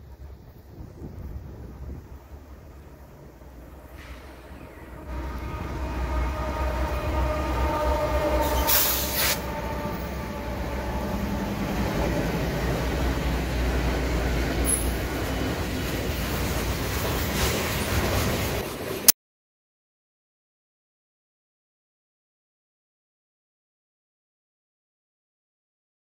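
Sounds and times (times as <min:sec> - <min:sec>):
freight train rumbling: 0:00.0 - 0:19.1
short hiss: 0:08.6 - 0:09.5.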